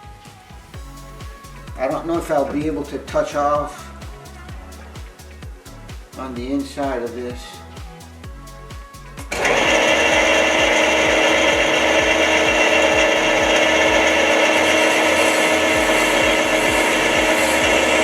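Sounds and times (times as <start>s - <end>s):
metal lathe running: 9.3s - 18.0s
lathe tool cutting brass: 9.4s - 18.0s.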